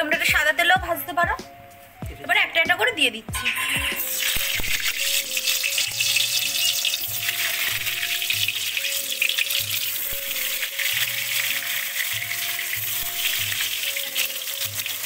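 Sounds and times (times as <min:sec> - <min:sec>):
background music with bass pulse: 0:00.0 - 0:15.0
potatoes sizzling in hot oil: 0:03.4 - 0:15.0.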